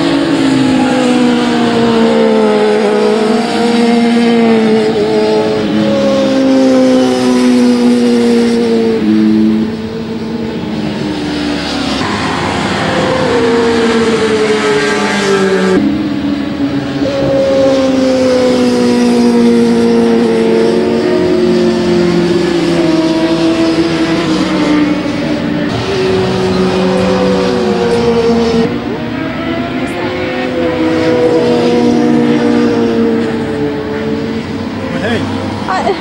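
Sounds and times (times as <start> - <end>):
racing motorcycles passing: 0.0 - 36.0.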